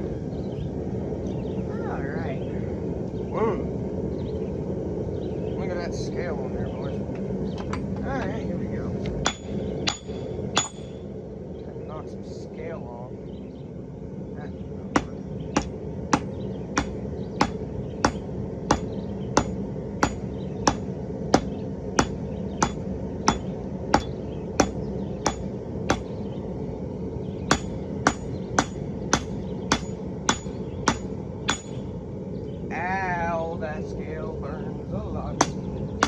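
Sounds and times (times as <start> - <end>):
hammer striking steel on anvil: 9.2 - 11.0, 14.9 - 26.1, 27.5 - 31.9, 35.4 - 35.6.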